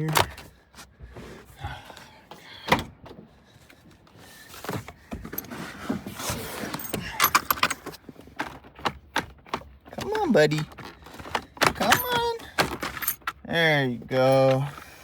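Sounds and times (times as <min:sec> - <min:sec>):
hands rummaging in plastic compartment: 0:04.6 - 0:15.0.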